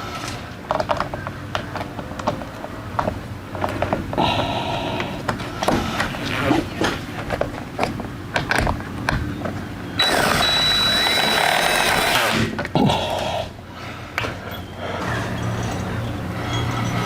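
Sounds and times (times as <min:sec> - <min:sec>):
metal hardware clicking and knocking: 0:06.8 - 0:09.6
power drill running: 0:10.0 - 0:12.5.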